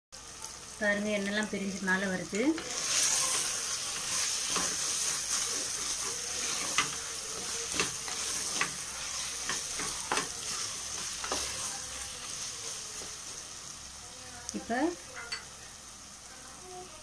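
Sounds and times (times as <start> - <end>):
masala sizzling in hot oil: 0.2 - 17.0
spatula scraping and knocking pot: 2.6 - 11.7.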